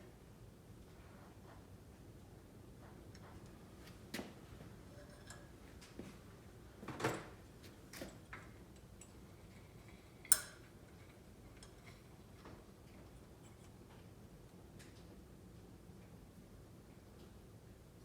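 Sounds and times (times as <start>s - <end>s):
metal tools clinking on workbench: 10.2s - 12.1s.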